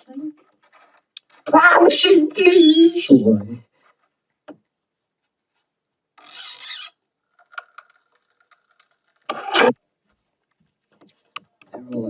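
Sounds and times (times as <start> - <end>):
rasping scrape: 6.2 - 7.0, 8.8 - 9.8.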